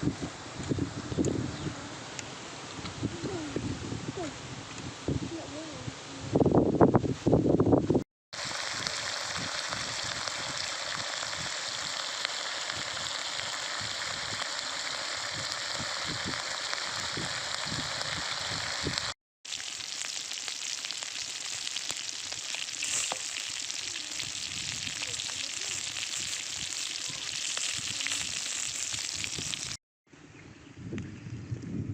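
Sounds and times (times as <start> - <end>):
meat sizzling in hot oil: 8.4 - 29.8.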